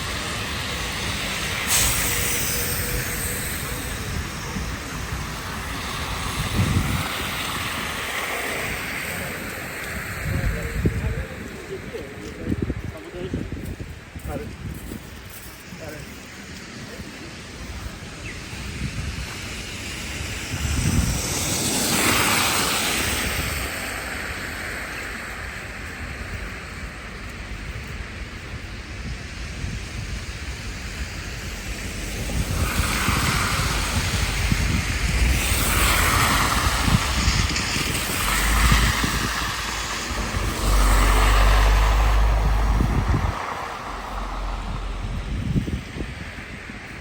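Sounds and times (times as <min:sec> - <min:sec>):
tyres hissing through slush: 0:00.0 - 0:12.3, 0:14.9 - 0:47.0
street traffic rushing: 0:00.0 - 0:47.0.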